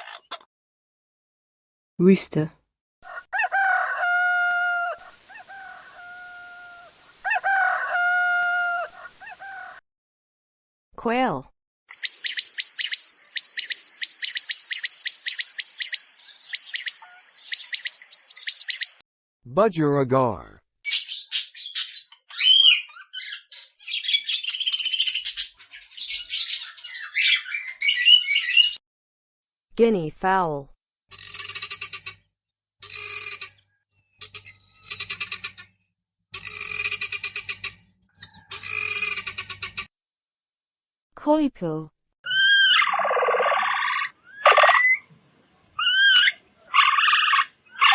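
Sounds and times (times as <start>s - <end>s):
quail chirping: 11.9s - 19.0s, 20.9s - 28.8s, 34.2s - 35.7s, 36.4s - 39.9s
guinea fowl calling: 12.0s - 17.9s, 20.9s - 28.8s, 36.4s - 39.8s.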